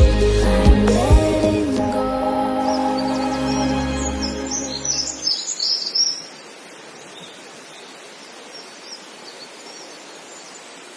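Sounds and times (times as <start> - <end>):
steady outdoor hiss: 0.0 - 10.9
small birds chirping: 2.6 - 10.9.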